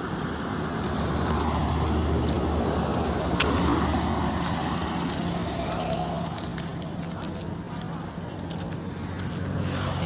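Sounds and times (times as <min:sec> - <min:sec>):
vehicle passing by: 0:08.6 - 0:10.0.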